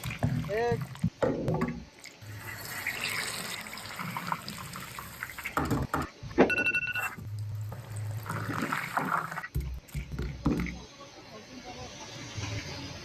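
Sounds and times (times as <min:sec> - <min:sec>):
water pouring and splashing: 0:00.0 - 0:05.9, 0:07.0 - 0:10.8.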